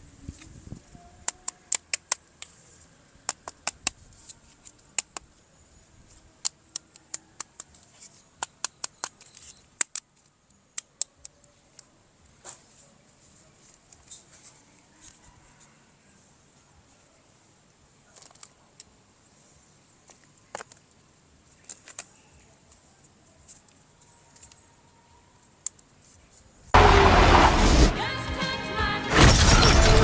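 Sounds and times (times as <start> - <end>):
plastic toy clicks and snaps: 1.2 - 2.6, 6.4 - 7.8, 8.4 - 11.9.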